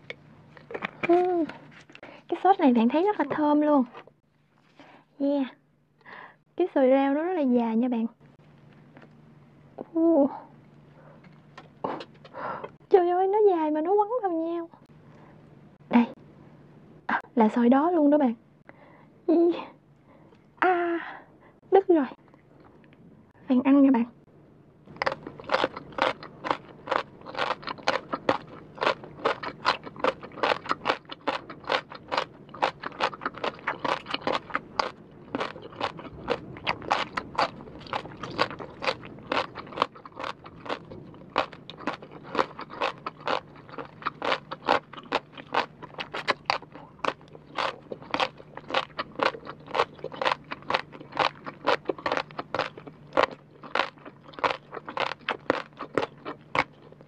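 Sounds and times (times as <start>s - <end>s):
crunching crisp vegetable strands: 25.0s - 57.0s.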